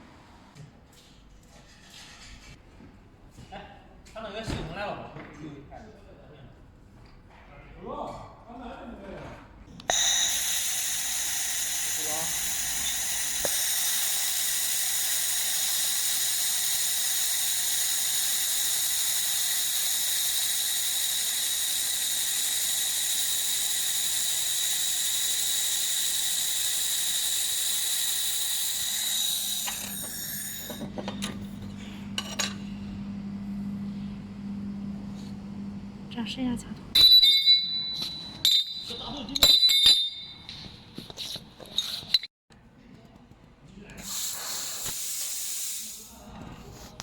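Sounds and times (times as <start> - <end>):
laser welder hissing and whining: 9.9 - 30.8, 44.0 - 46.2.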